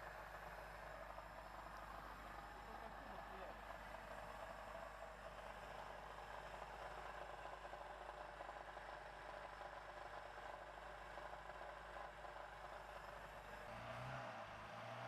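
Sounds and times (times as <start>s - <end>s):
faint engine hum with hiss: 0.0s - 8.2s.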